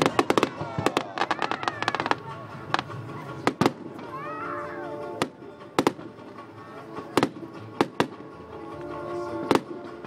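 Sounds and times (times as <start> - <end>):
fireworks bursting: 0.0 - 4.1
music playing: 0.0 - 10.0.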